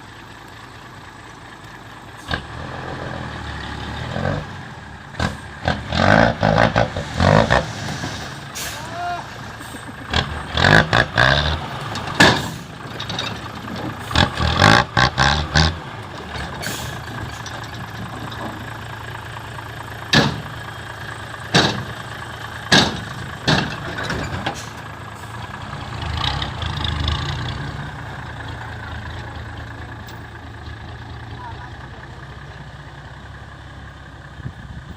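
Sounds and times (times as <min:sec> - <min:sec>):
diesel truck engine idling: 0:00.0 - 0:05.8, 0:08.2 - 0:34.9
loud metal knocks and clanks: 0:11.8 - 0:14.8, 0:20.0 - 0:20.6, 0:21.4 - 0:24.7.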